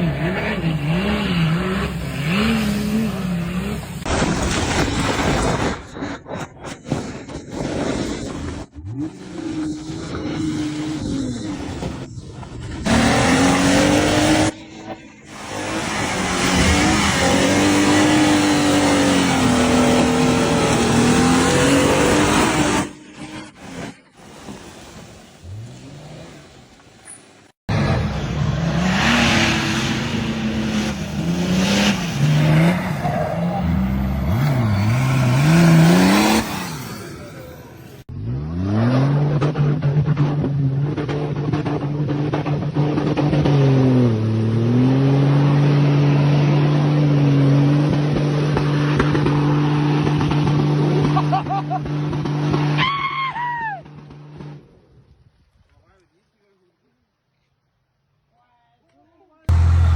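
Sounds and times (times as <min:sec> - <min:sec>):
engine revving hard: 0:00.0 - 0:04.1, 0:12.8 - 0:14.6, 0:15.3 - 0:23.8, 0:27.7 - 0:52.8, 0:59.5 - 0:59.9
engine revving steady note: 0:59.5 - 0:59.9.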